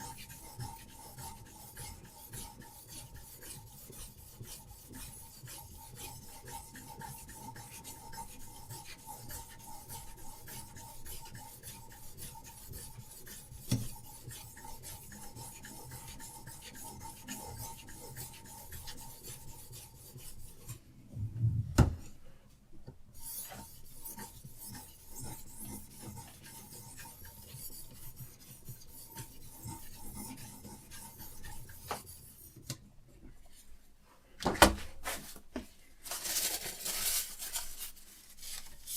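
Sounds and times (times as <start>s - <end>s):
sharpening stone rasping on blade: 0.0s - 20.7s, 23.2s - 32.6s.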